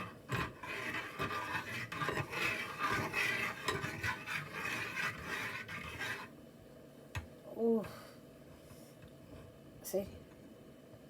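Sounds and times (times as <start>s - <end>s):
spoon scraping a pot: 0.0s - 6.3s.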